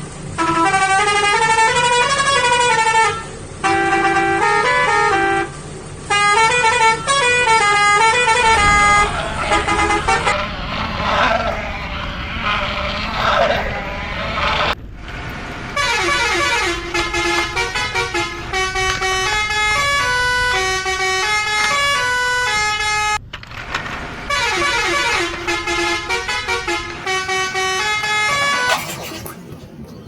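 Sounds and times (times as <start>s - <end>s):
harsh rough tone: 23.5s - 29.7s.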